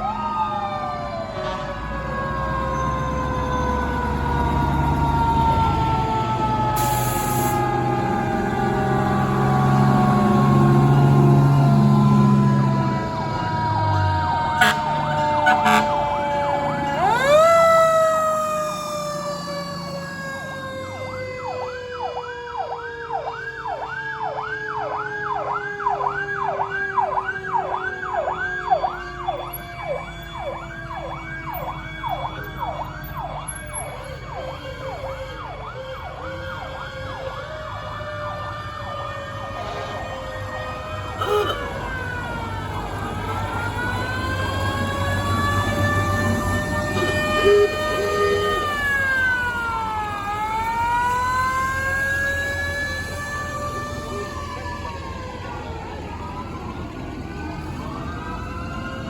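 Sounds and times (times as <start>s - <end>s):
siren wailing: 0.0s - 59.0s
siren yelping rapidly: 14.6s - 21.6s, 43.4s - 55.2s.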